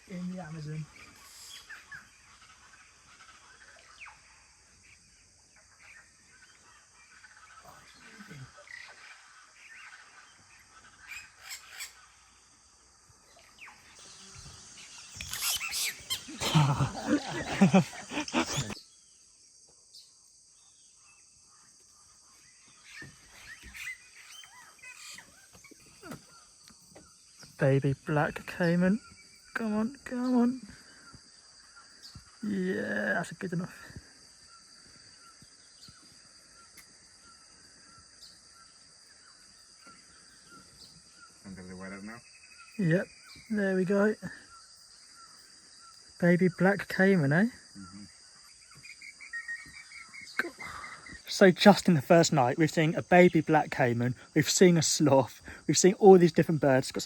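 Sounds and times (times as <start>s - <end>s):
birds chirping: 0.0s - 57.0s
insects droning: 0.0s - 57.0s.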